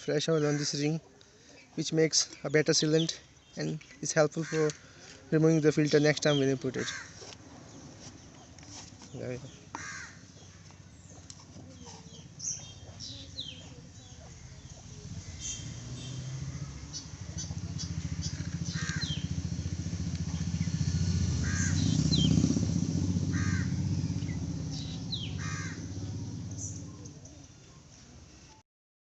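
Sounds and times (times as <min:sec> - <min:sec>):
crows cawing: 0:00.4 - 0:01.0, 0:04.3 - 0:05.2, 0:06.7 - 0:07.3, 0:09.7 - 0:10.8, 0:17.9 - 0:19.4, 0:21.4 - 0:22.2, 0:23.2 - 0:24.0, 0:24.8 - 0:26.2
low engine rumble: 0:04.5 - 0:28.4.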